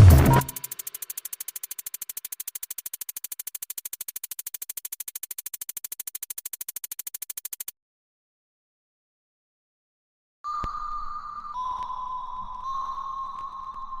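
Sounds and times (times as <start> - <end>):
rapid electronic ticking: 0.0 - 7.7.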